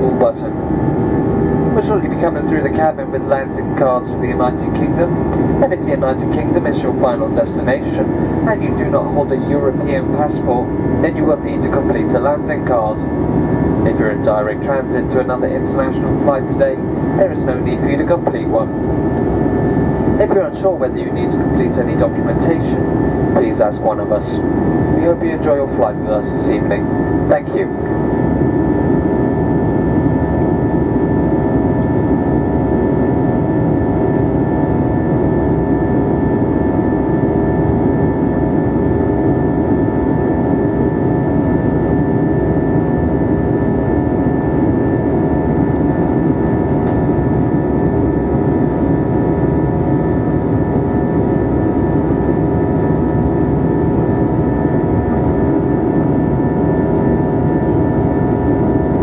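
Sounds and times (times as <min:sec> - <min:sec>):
steady tones: 0:00.0 - 0:13.9
engine and airflow roar: 0:00.0 - 0:59.0.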